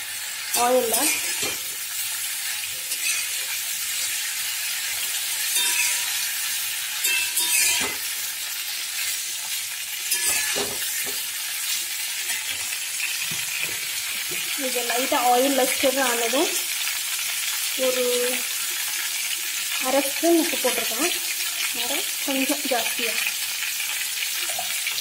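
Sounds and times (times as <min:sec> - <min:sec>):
vegetables sizzling in oil: 0:00.0 - 0:25.0
metal spatula scraping pan: 0:00.5 - 0:01.8, 0:02.9 - 0:03.6, 0:05.0 - 0:08.2, 0:10.0 - 0:11.2.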